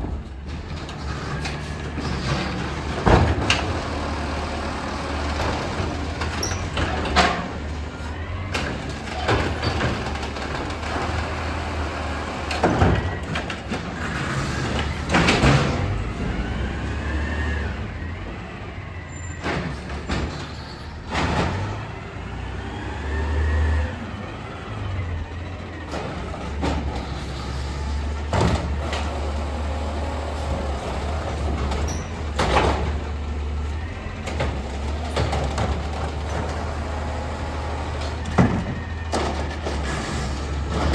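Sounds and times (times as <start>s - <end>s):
garbage truck diesel engine: 0.0s - 40.9s
sharp bangs of carts: 19.4s - 21.9s.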